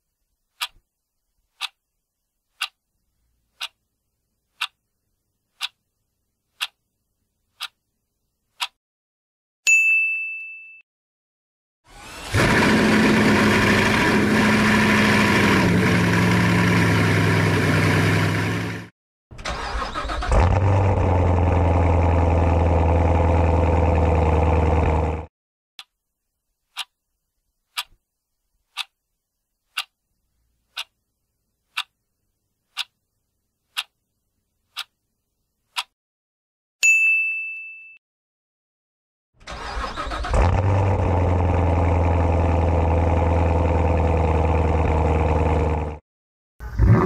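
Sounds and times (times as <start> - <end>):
clock ticking: 0.6 - 0.8, 1.6 - 1.8, 2.6 - 2.8, 3.6 - 3.8, 4.6 - 4.8, 5.6 - 5.8, 6.6 - 6.8, 7.6 - 7.8, 8.5 - 8.8, 26.7 - 26.9, 27.7 - 28.0, 28.7 - 29.0, 29.7 - 30.0, 30.7 - 31.0, 31.7 - 31.9, 32.7 - 33.0, 33.7 - 34.0, 34.7 - 35.0, 35.7 - 36.0
car engine revving: 12.0 - 18.9, 19.7 - 25.3, 39.5 - 46.0.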